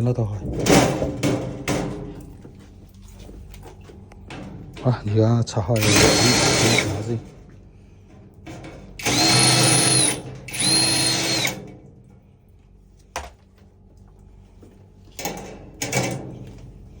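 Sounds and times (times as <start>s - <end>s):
electric screwdriver whirring: 5.8s - 7.0s, 9.0s - 11.6s.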